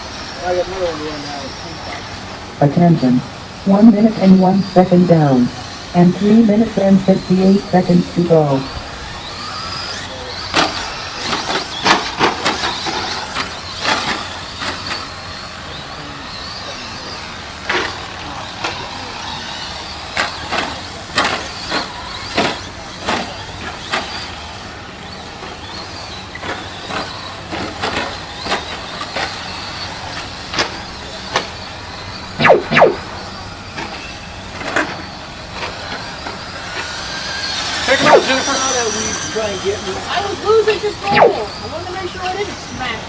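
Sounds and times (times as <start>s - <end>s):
rc truck motor whine: 0.0s - 43.0s
trucks clacking on bumps: 19.5s - 31.7s.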